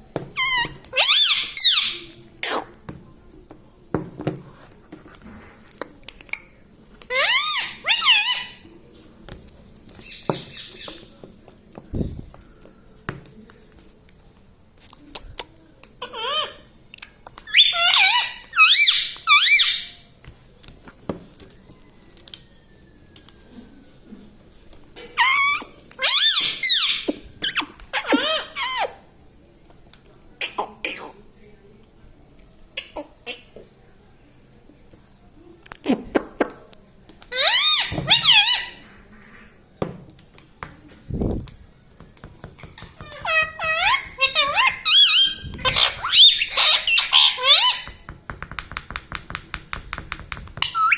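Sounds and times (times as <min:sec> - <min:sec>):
parakeet shrill calls: 0:00.4 - 0:02.1, 0:07.1 - 0:08.6, 0:17.5 - 0:20.0, 0:25.2 - 0:27.1, 0:37.3 - 0:38.8, 0:43.0 - 0:48.0
parrot squawking: 0:00.4 - 0:02.6, 0:07.1 - 0:08.6, 0:17.5 - 0:20.0, 0:25.2 - 0:29.0, 0:37.3 - 0:38.9, 0:43.0 - 0:48.0, 0:50.6 - 0:50.9.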